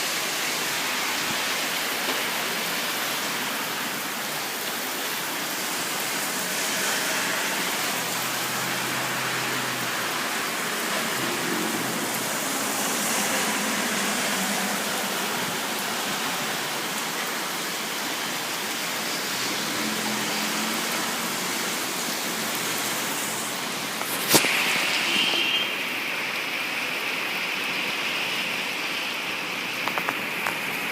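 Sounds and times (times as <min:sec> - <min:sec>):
rain falling steadily: 0:00.0 - 0:30.9.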